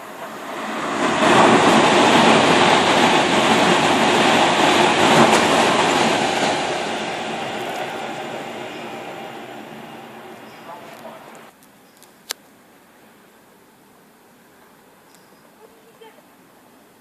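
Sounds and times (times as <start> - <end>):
train wheels on rails: 0.0 - 11.6.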